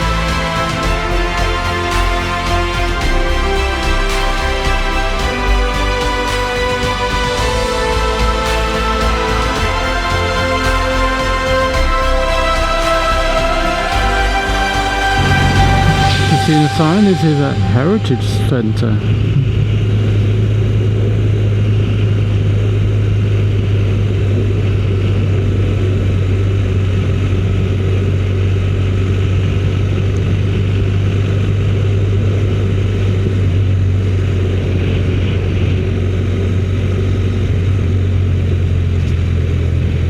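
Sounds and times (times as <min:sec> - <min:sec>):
motorcycle engine cruising: 0:15.0 - 0:18.4
wind and road noise: 0:17.8 - 0:40.0.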